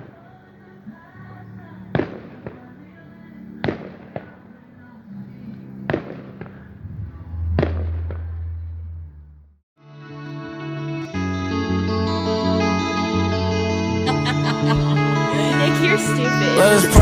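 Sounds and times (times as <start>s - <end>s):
smaller firework cracks: 5.8s - 6.8s
fireworks bangs: 5.9s - 8.9s
music with held notes: 9.8s - 17.0s.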